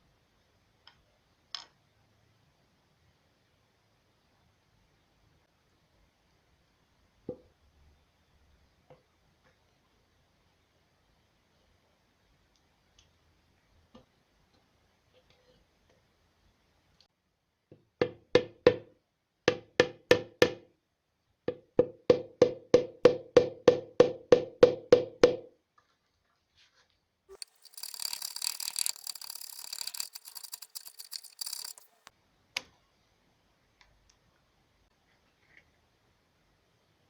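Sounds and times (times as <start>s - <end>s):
scraping: 27.3s - 32.1s.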